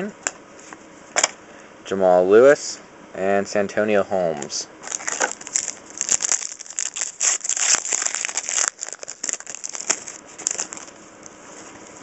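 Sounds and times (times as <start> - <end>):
foil wrapper tearing and crinkling: 4.8 - 11.3.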